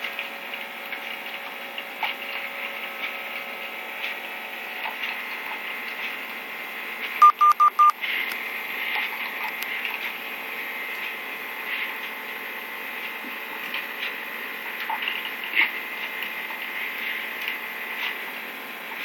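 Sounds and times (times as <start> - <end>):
coffee machine beeps: 7.2 - 8.0.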